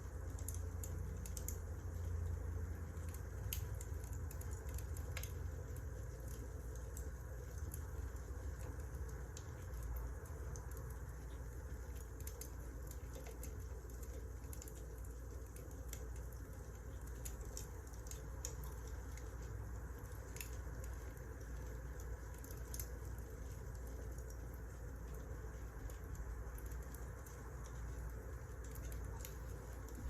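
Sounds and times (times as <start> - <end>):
low fire rumble: 0.0 - 30.0
firewood crackling: 0.1 - 30.0.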